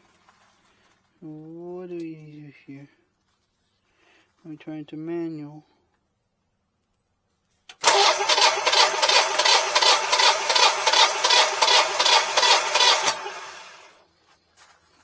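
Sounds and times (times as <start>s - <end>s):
engine spinning down: 7.8s - 14.0s
generator engine cranking: 7.8s - 14.0s.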